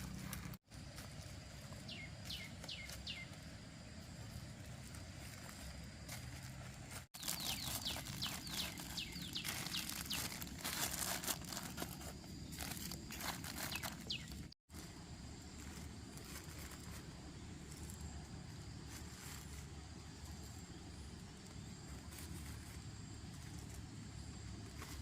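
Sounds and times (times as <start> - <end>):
outdoor background noise: 0.0 - 25.0
rustling and footsteps: 0.0 - 25.0
falling bird chirps: 1.6 - 4.4, 7.0 - 14.6.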